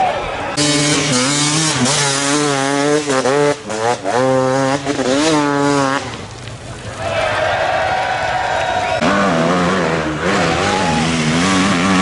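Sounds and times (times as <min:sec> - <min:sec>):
motorcycle engine revving hard: 0:00.5 - 0:06.2, 0:09.0 - 0:12.0.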